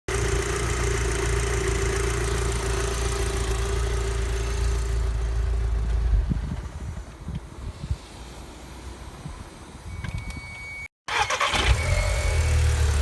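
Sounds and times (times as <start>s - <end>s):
car engine idling: 0.1s - 6.2s.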